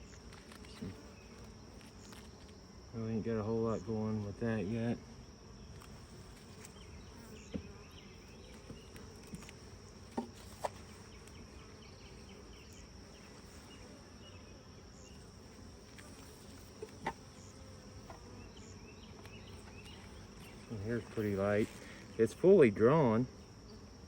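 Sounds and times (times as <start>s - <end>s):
honey bees buzzing: 0.0s - 24.0s
light knocks on hive: 7.4s - 11.3s.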